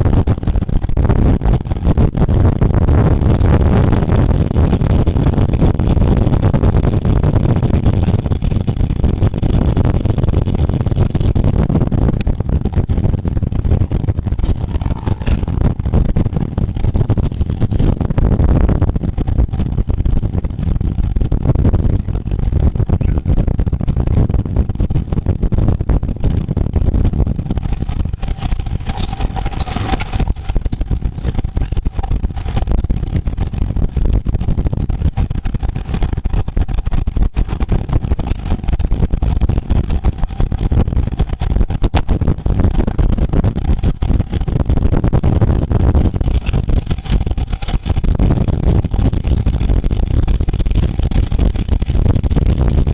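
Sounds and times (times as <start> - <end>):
bicycle road noise: 0.0 - 52.9
wind buffeting microphone: 0.0 - 52.9
steady tone: 0.2 - 35.0.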